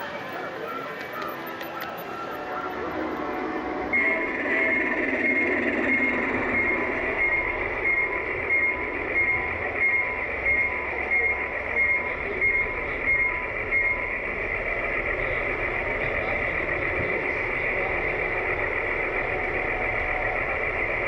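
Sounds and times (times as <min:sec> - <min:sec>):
model train running: 0:00.0 - 0:21.0.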